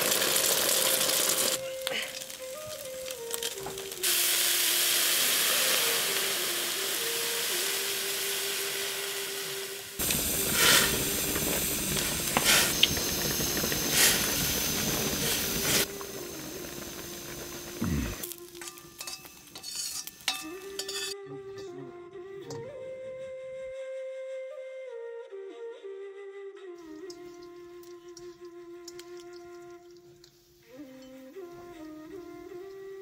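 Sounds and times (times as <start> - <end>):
egg and greens sizzling in wok: 0.0 - 21.2, 26.9 - 33.0
chopsticks clicking against wok: 27.0 - 30.4.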